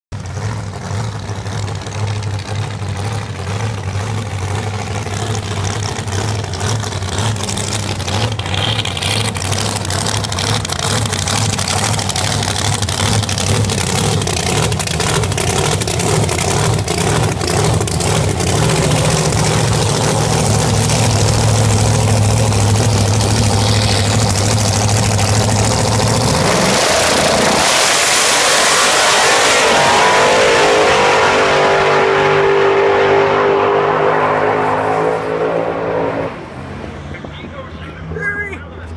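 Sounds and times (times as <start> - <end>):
race car engine idling: 0.1 - 27.6, 37.0 - 38.9.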